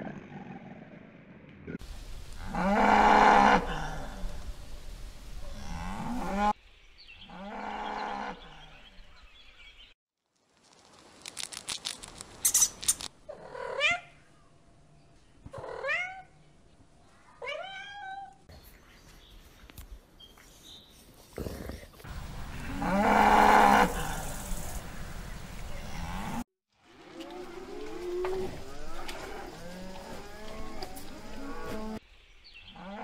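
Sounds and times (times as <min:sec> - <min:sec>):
cow mooing: 0:22.5 - 0:24.2, 0:27.2 - 0:32.0.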